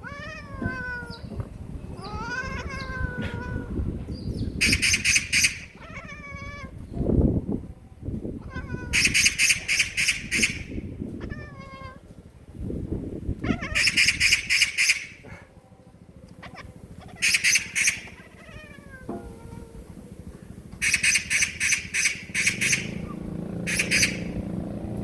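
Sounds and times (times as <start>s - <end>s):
cat chattering chirps: 2.0s - 3.8s, 4.6s - 6.7s, 8.4s - 11.6s, 13.5s - 15.2s, 16.4s - 19.8s, 20.8s - 24.4s
magpie rattling chatter: 4.6s - 6.2s, 8.9s - 10.8s, 13.5s - 15.3s, 16.4s - 18.8s, 20.6s - 24.6s.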